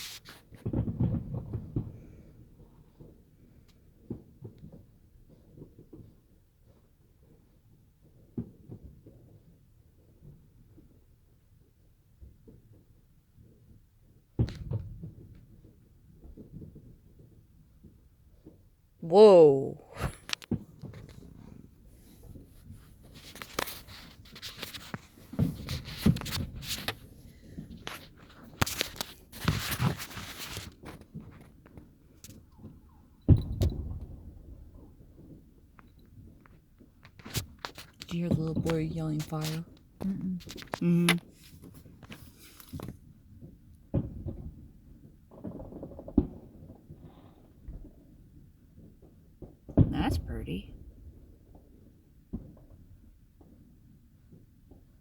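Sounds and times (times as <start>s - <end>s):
muffled firework bangs: 0.6s - 2.2s.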